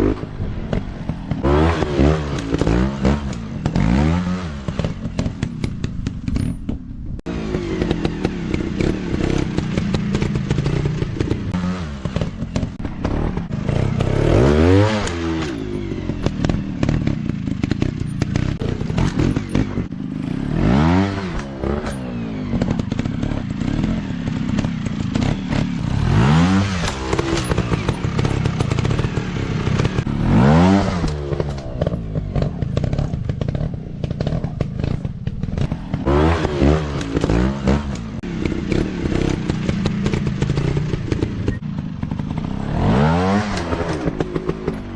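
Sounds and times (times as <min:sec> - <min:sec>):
dirt bike engine revving: 0:00.0 - 0:06.5, 0:07.3 - 0:44.9
clattering and scraping: 0:21.1 - 0:44.9.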